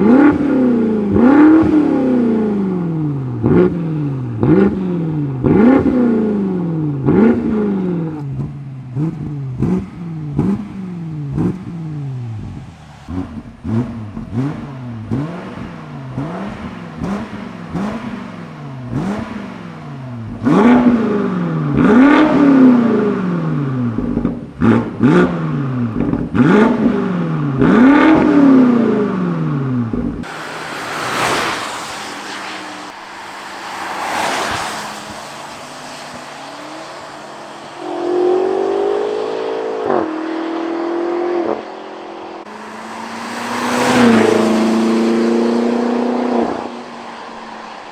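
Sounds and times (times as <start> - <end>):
engine revving in blips: 0.0 - 33.0, 37.8 - 46.9
tyre and wind rush: 30.0 - 37.1
car driving past: 30.2 - 41.3, 42.4 - 47.9.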